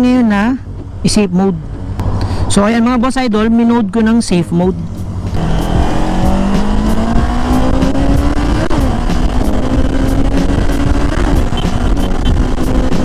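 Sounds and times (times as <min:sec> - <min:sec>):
motorcycle engine accelerating: 0:04.8 - 0:13.0
wind rush on microphone: 0:05.0 - 0:13.0.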